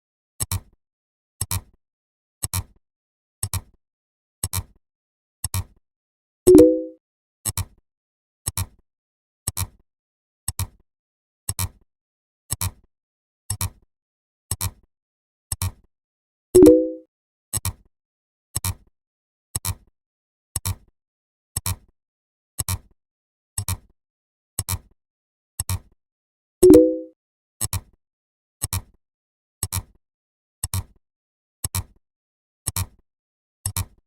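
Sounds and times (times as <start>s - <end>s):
short electronic double click: 6.5s - 7.0s, 16.6s - 17.0s, 26.6s - 27.1s
short electronic tone: 6.5s - 7.0s, 16.6s - 17.0s, 26.6s - 27.1s.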